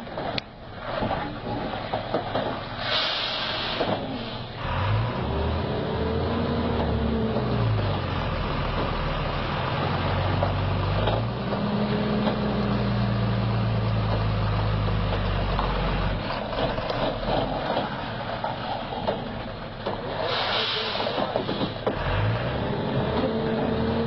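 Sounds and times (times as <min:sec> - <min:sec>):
diesel truck engine running: 0:00.0 - 0:24.0.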